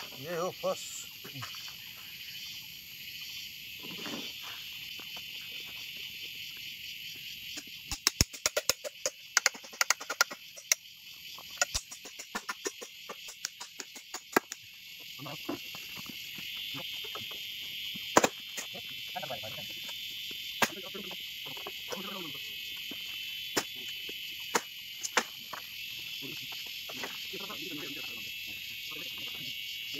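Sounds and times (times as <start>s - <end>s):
insects shrilling: 0.0s - 29.9s
bamboo being chopped and split: 7.6s - 10.4s, 11.5s - 14.7s, 18.0s - 18.7s, 20.6s - 20.9s, 23.5s - 25.6s.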